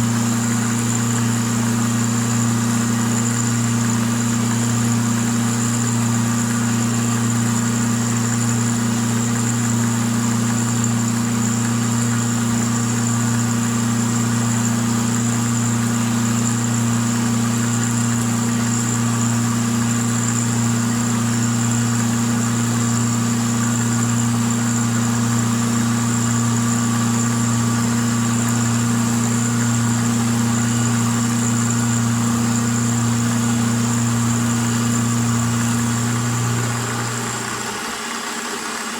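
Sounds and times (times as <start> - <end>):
milling machine cutting steel: 0.0 - 38.9.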